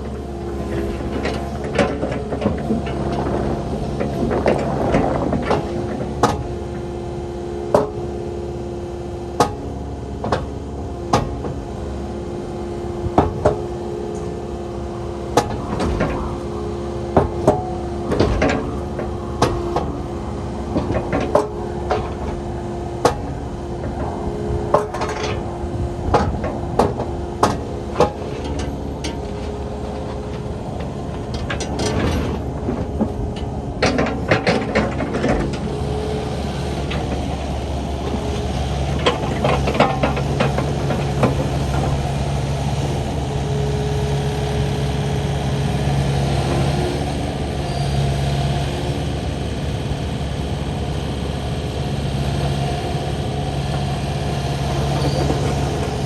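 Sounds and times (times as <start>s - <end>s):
excavator engine drone: 0.0s - 56.0s
metal knocks and clanks: 26.1s - 35.6s.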